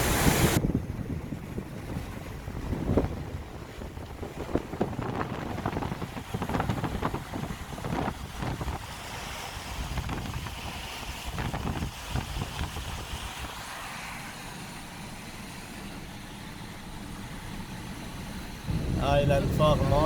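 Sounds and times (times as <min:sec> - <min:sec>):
wind buffeting microphone: 0:00.0 - 0:13.7, 0:17.8 - 0:20.0
low rumbling background: 0:15.0 - 0:20.0.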